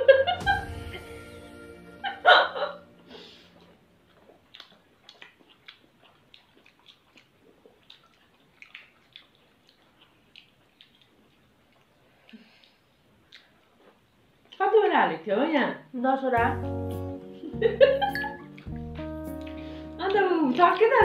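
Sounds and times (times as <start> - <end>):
wet mouth clicks and lip smacks: 3.6 - 14.6, 18.4 - 21.0.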